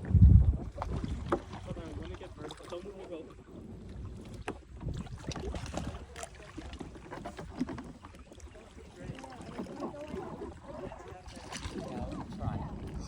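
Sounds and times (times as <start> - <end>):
water splashing around kayaks: 0.0 - 13.0
wind rumble on microphone: 0.0 - 13.0.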